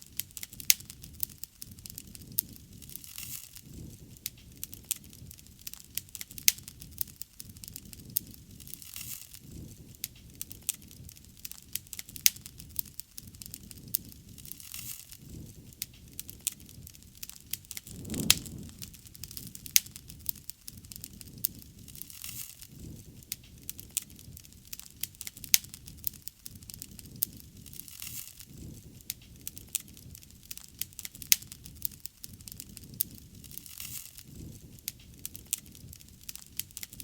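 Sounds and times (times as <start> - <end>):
bonfire crackling and popping: 0.0 - 37.0
low fire rumble: 15.2 - 22.1.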